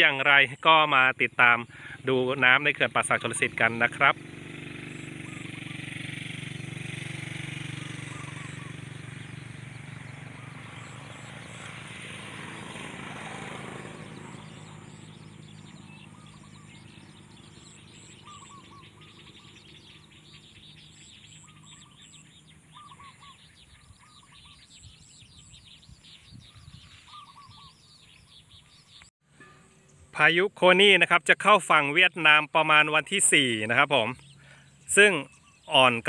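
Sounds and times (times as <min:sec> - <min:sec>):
birds chirping: 0:00.0 - 0:36.0
low engine hum: 0:03.3 - 0:29.1.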